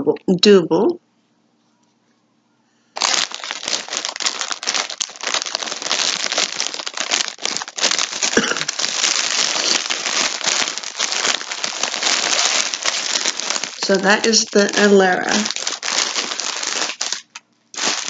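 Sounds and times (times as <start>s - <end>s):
packaging crinkling: 3.0s - 18.0s.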